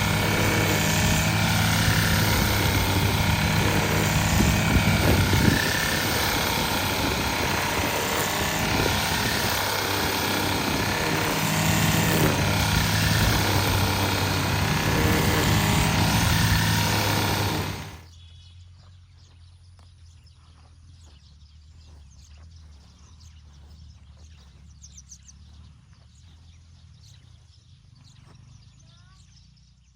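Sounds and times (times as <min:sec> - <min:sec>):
string trimmer engine running: 0:00.0 - 0:18.1.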